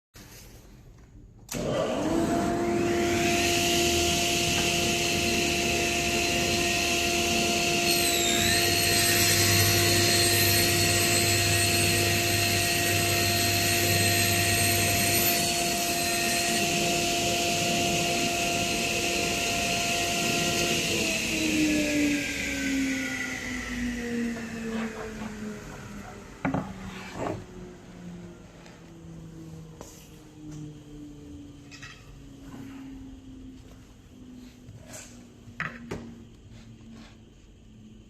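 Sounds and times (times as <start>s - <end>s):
circular saw cutting panel: 1.5s - 28.9s.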